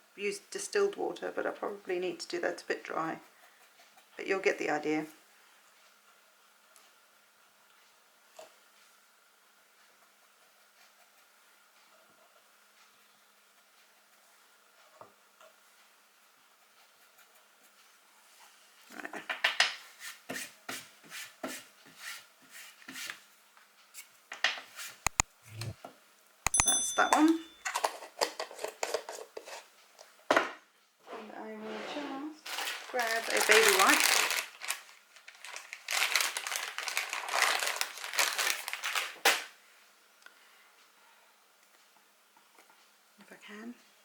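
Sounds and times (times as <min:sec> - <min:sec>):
plastic packet crinkling: 0:32.4 - 0:39.5.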